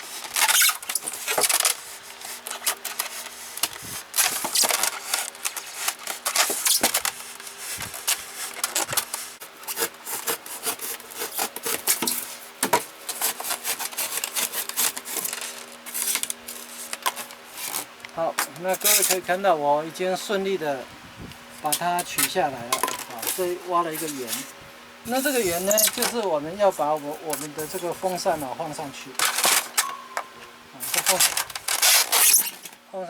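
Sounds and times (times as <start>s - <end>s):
knife sawing foam: 9.2s - 12.4s, 13.1s - 15.3s, 25.1s - 28.8s.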